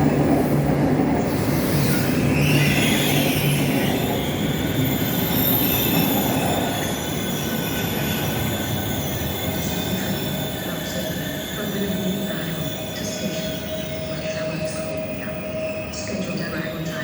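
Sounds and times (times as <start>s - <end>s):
train rumbling: 0.0s - 17.0s
high wheel squeal: 0.2s - 17.0s.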